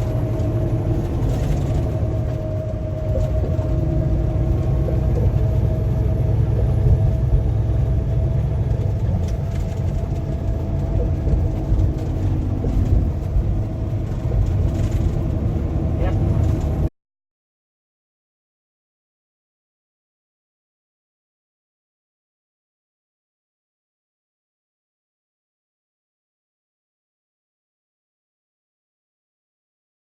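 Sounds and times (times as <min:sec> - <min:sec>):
engine and road rumble: 0:00.0 - 0:16.9.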